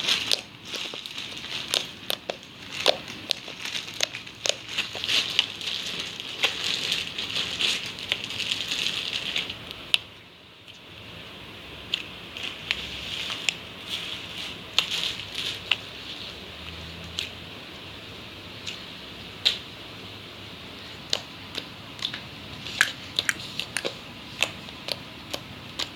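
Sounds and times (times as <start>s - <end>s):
slime squishing: 0.0s - 10.9s, 20.7s - 25.9s.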